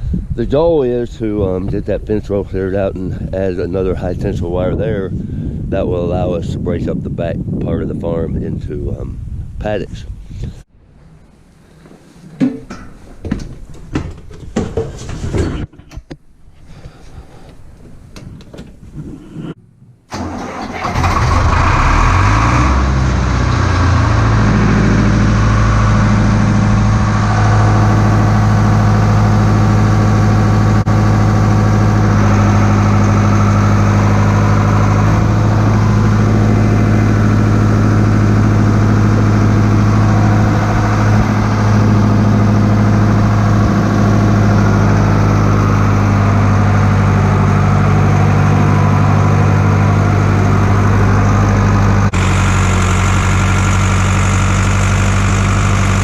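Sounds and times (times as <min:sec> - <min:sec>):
tractor engine starting and running: 0:00.0 - 0:06.5, 0:19.7 - 0:56.0.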